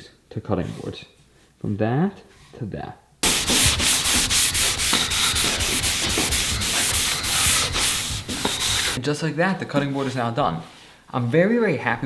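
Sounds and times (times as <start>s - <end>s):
rubbing on wooden cutting board: 3.2s - 9.0s.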